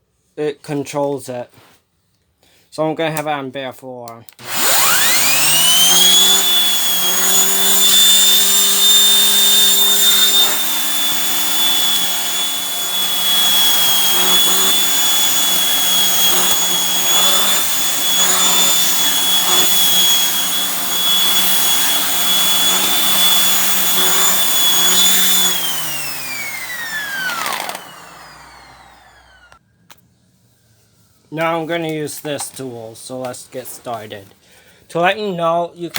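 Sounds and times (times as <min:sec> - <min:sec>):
vacuum cleaner motor whine: 0:04.4 - 0:29.6.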